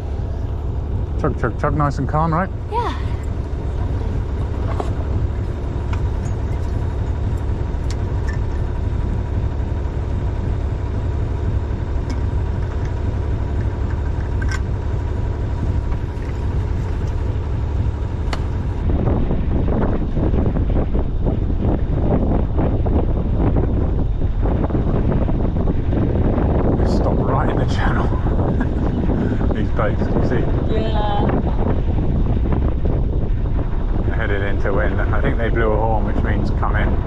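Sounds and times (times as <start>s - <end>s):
boat engine chugging: 0.0s - 37.0s.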